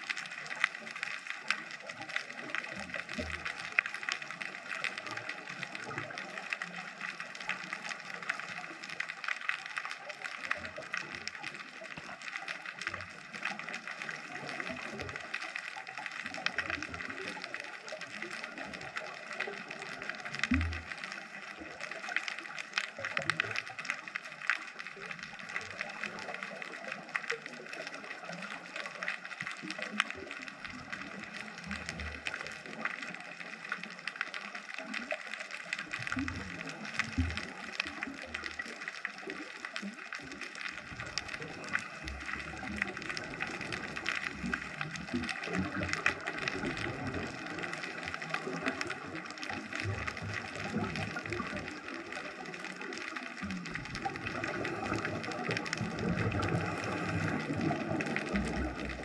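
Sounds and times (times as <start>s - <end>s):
underwater clicking crackle: 0.0s - 59.0s.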